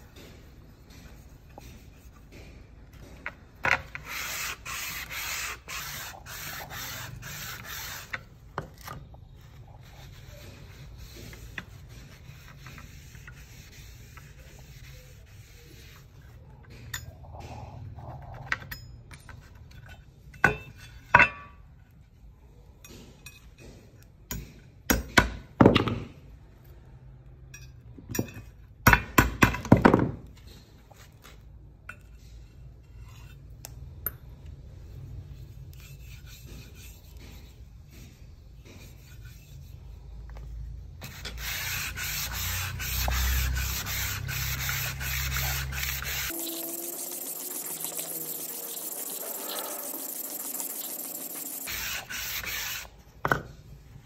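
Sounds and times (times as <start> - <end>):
rubbing or filing strokes: 4.0 - 8.4, 9.4 - 16.4, 35.3 - 40.1, 41.0 - 52.9.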